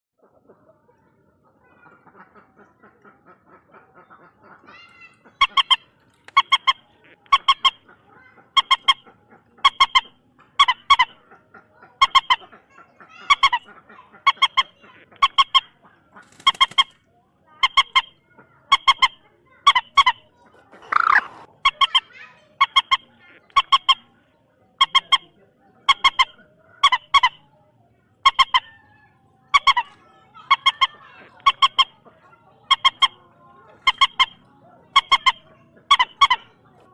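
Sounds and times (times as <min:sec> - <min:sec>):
moorhen harsh honking call: 0:20.8 - 0:22.0.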